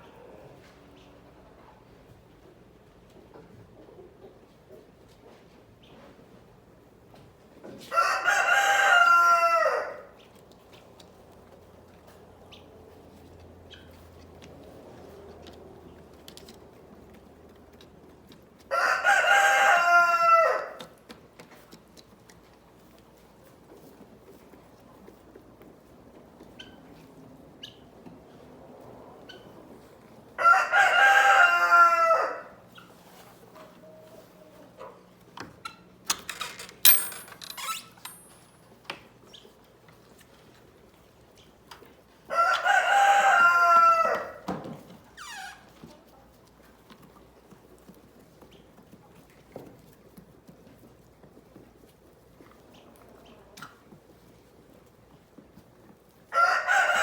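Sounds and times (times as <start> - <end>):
rooster crowing: 8.0 - 10.0, 18.7 - 20.8, 30.4 - 32.5, 42.3 - 44.4.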